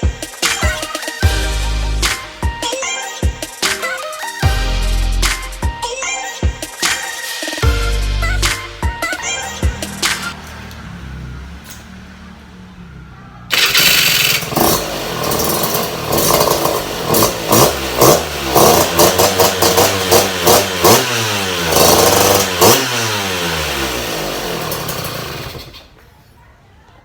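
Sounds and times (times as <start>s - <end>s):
motorcycle engine revving: 7.6s - 26.0s.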